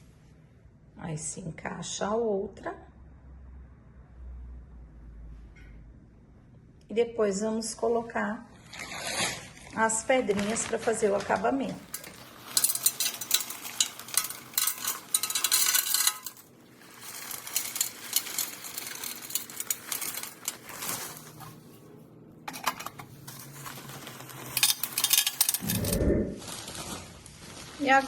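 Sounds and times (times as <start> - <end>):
gravel poured into planter: 8.7 - 21.7, 23.0 - 28.0.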